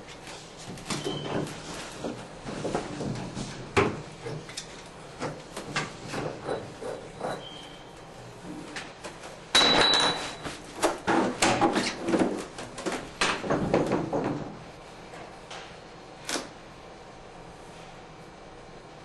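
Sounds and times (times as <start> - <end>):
high metallic ring: 9.6 - 10.4.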